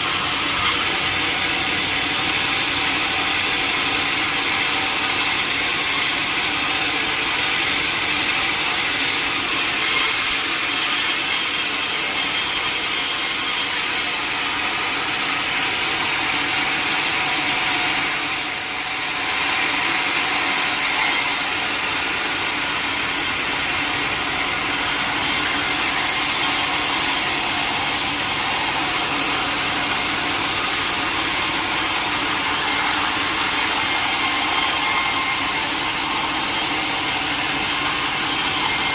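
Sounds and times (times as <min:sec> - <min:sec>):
sawmill blade cutting log: 0:00.0 - 0:38.9.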